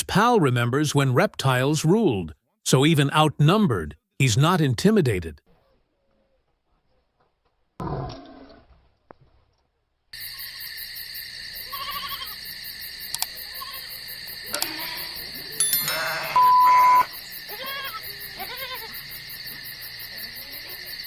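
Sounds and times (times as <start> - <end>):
animal bleating: 11.6 - 12.4, 13.5 - 19.0, 20.1 - 20.9
electronic beep: 15.8 - 17.1.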